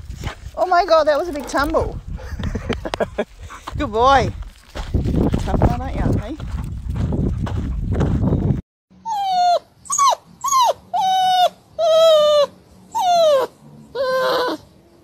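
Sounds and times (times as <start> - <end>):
puppy yipping: 9.0 - 14.6.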